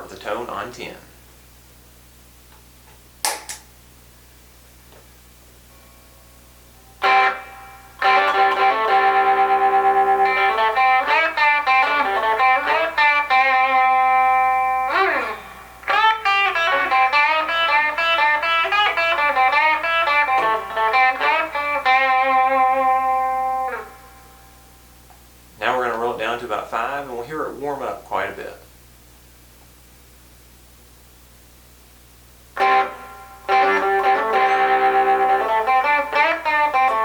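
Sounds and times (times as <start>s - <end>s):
faint amp hum: 0.0s - 37.0s
overdriven electric guitar riff: 7.0s - 24.9s, 32.5s - 37.0s.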